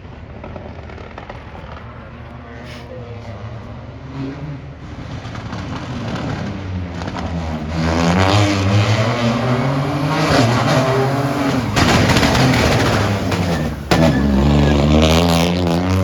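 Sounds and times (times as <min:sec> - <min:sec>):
rally car engine revving: 0:00.1 - 0:16.0.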